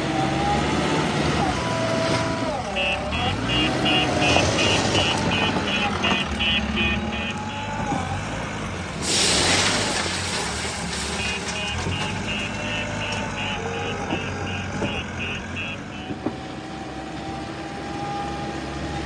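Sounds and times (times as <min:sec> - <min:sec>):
diesel engine running: 0:00.0 - 0:19.0
reversing alarm beeping: 0:02.6 - 0:08.0, 0:11.2 - 0:16.7.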